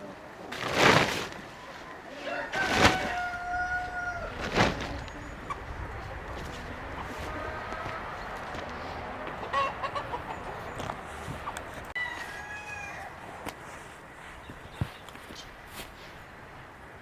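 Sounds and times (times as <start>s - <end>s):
chickens: 0.0s - 13.5s
rooster crowing: 2.1s - 4.4s, 12.0s - 13.2s.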